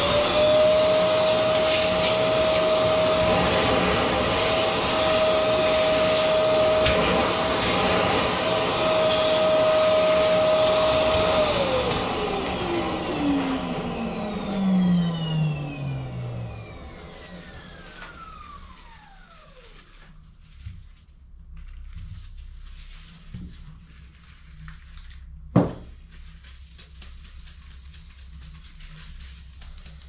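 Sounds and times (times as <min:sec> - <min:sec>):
vacuum cleaner motor whining: 0:00.0 - 0:19.7.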